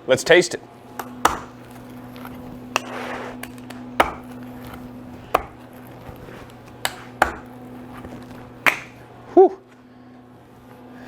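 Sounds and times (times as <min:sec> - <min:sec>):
blade cutting crispy pizza: 0:00.9 - 0:09.0.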